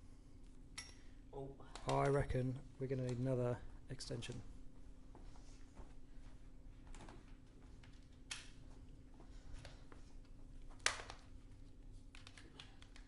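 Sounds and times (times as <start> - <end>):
faint steady hum: 0.0 - 13.0
cables and plugs clicking: 1.7 - 3.3, 12.1 - 13.0.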